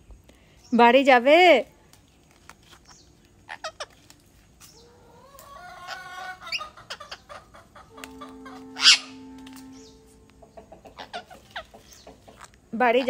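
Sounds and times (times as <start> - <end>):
birds chirping: 2.6 - 13.0
steady low tone: 7.8 - 11.6.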